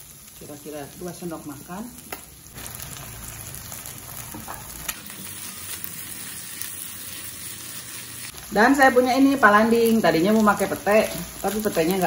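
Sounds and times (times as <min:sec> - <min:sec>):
food sizzling in a wok: 0:00.0 - 0:12.0
spatula stirring in a wok: 0:02.6 - 0:08.5.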